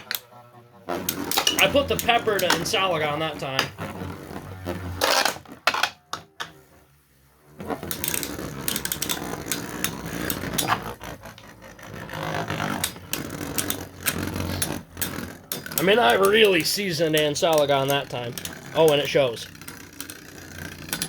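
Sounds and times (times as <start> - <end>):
spinning tops rattling in plastic bowl: 1.1 - 3.8, 7.7 - 11.0, 12.0 - 21.0.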